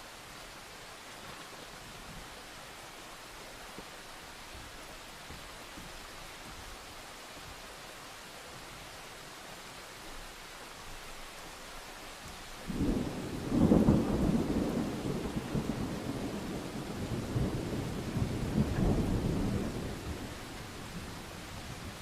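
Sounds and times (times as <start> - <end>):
steady rain hiss: 0.0 - 22.0
thunder rumbling: 12.6 - 22.0.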